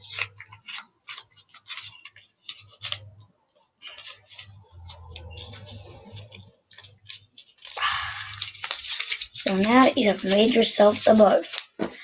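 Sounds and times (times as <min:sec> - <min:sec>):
paper rustling and creasing: 0:00.0 - 0:12.0.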